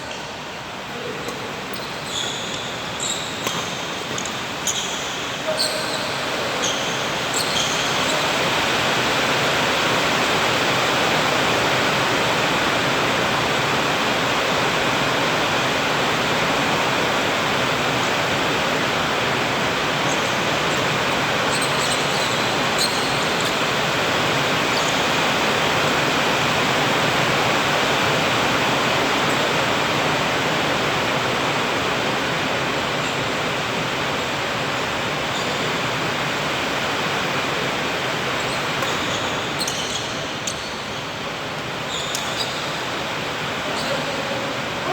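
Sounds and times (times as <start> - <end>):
faint high-pitched squeaks: 0.9 - 8.4, 43.6 - 44.9.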